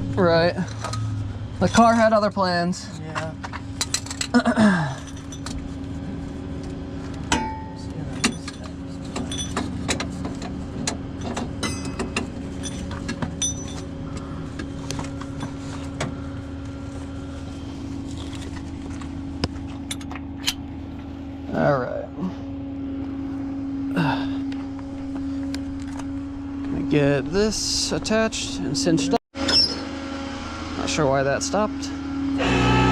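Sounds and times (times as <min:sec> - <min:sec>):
metallic clinks and clanks: 0:03.8 - 0:05.6, 0:07.3 - 0:10.5, 0:11.2 - 0:13.9.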